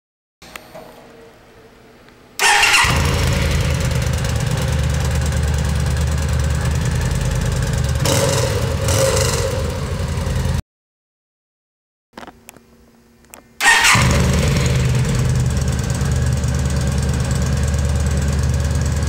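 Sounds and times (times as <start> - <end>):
motorcycle engine cranking: 2.4 - 9.3, 13.6 - 17.5
motorcycle engine running: 2.7 - 10.6, 13.9 - 19.0.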